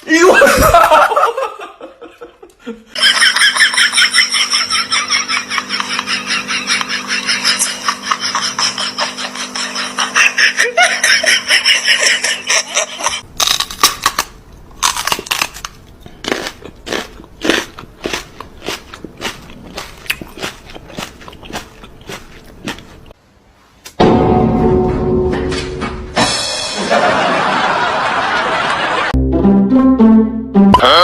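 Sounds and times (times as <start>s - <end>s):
sharp crunching: 13.2s - 23.1s.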